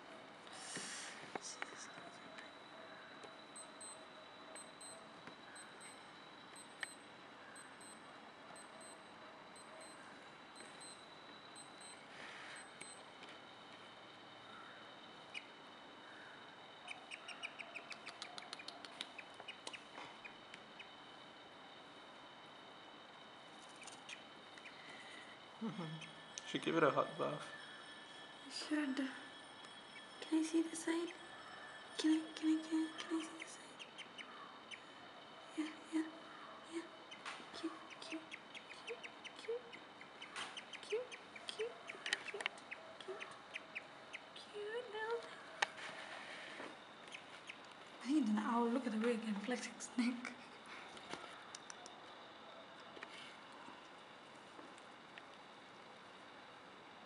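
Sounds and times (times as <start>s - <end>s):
small bird chirping: 1.4s - 13.2s, 14.4s - 21.8s, 23.0s - 45.7s, 46.3s - 49.9s
bird squeaky chirps: 16.8s - 21.0s, 33.1s - 34.9s, 37.1s - 44.4s.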